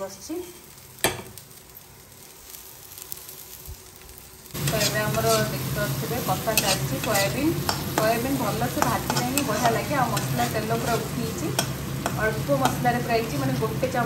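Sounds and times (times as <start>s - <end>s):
food sizzling in oil: 0.0s - 14.0s
steel spatula scraping a pan: 4.6s - 13.4s.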